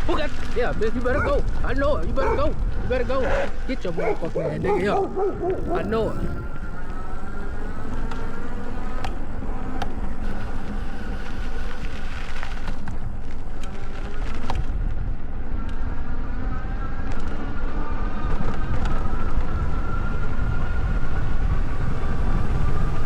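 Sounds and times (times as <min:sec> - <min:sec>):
wind rumble on microphone: 0:00.0 - 0:23.0
electric bike motor whining: 0:00.1 - 0:23.0.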